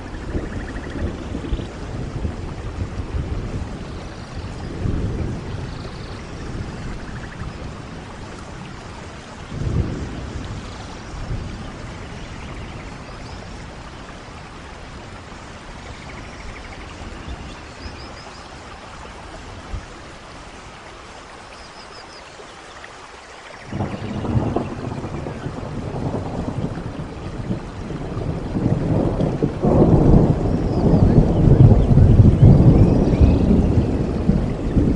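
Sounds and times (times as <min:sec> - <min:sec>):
thunder rumbling: 0:00.0 - 0:18.2, 0:23.7 - 0:34.9
steady rain: 0:00.0 - 0:34.9.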